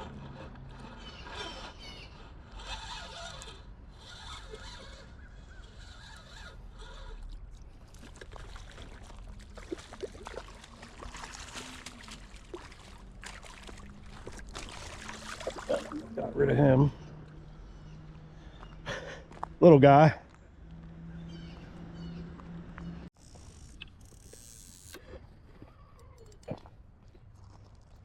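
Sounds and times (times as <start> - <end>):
faint water splashing: 6.8 - 17.4
fishing reel clicks: 23.2 - 25.2.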